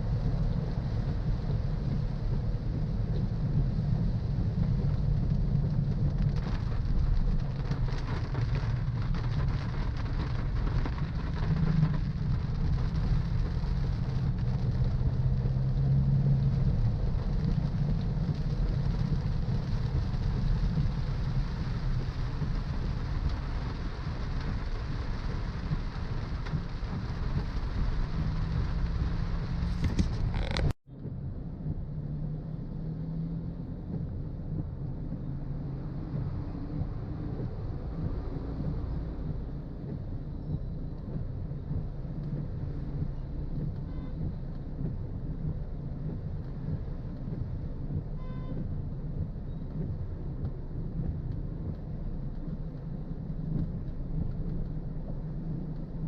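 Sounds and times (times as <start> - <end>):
rain hiss: 0.0 - 30.8
road and engine rumble: 0.0 - 56.0.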